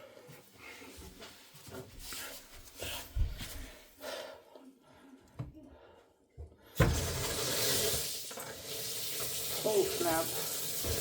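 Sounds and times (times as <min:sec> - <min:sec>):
person breathing: 0:02.1 - 0:06.8
faucet water gushing into sink: 0:06.8 - 0:11.0.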